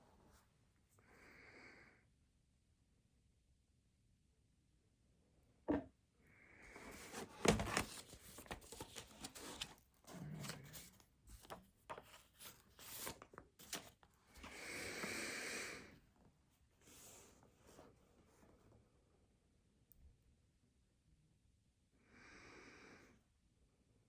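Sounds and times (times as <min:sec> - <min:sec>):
paper rustling: 0:06.8 - 0:15.2.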